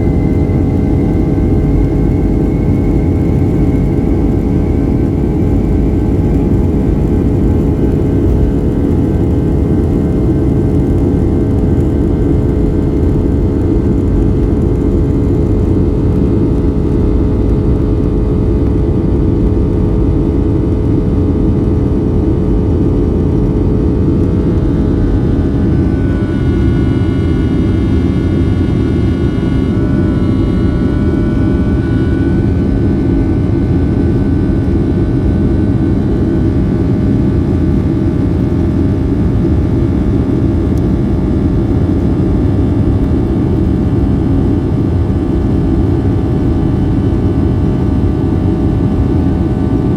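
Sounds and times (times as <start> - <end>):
high whining engine tones: 0.0 - 36.0
jet engine cabin rumble: 0.0 - 49.9.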